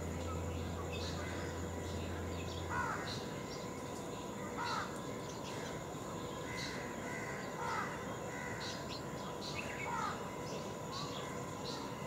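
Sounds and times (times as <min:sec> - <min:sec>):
faint background hum: 0:00.0 - 0:12.0.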